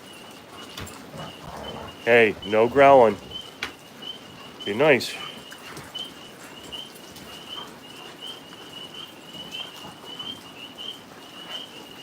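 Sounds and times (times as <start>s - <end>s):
faint clicks and rustling: 0.0s - 3.9s
tree frogs trilling: 0.0s - 12.0s.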